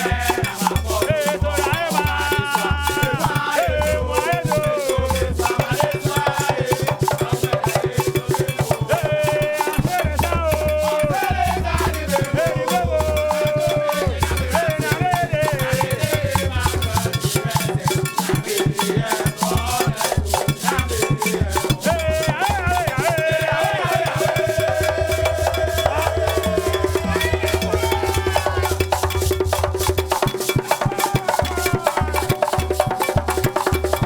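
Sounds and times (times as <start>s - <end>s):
upbeat band music: 25.6s - 28.7s.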